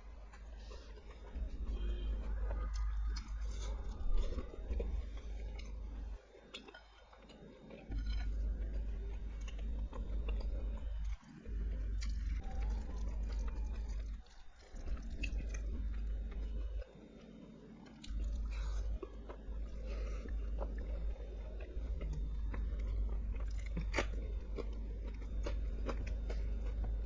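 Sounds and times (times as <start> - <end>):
close chewing of food: 0.0 - 27.0
crunchy bites: 17.9 - 27.0.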